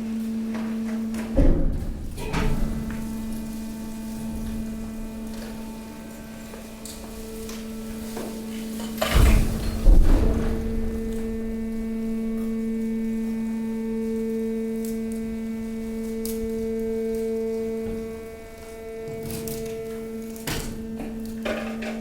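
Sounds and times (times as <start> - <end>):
hydraulic pump humming: 0.0 - 22.0
heavy low thump: 9.1 - 11.9.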